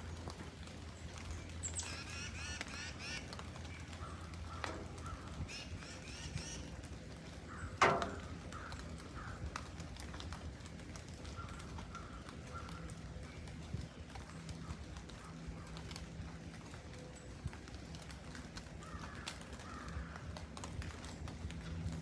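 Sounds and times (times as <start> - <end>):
birds calling with harsh notes: 0.0 - 10.0.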